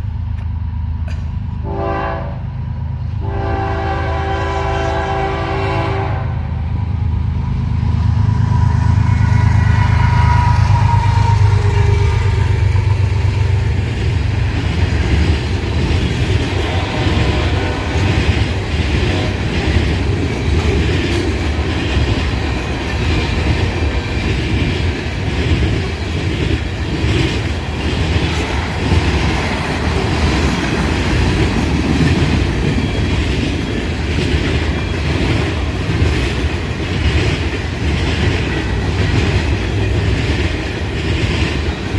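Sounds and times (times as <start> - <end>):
diesel locomotive rumble: 0.0 - 41.9
freight cars clattering on rails: 12.5 - 41.9.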